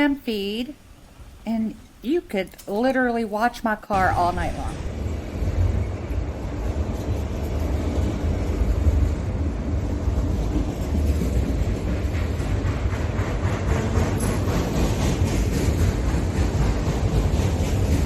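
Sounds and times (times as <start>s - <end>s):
train passing rumble: 4.0s - 18.0s.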